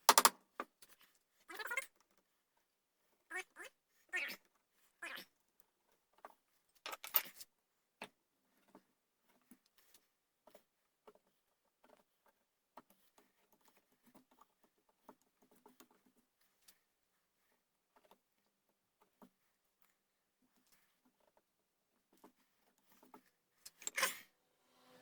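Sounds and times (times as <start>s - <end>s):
faint clicks and scrapes: 4.5s - 25.0s.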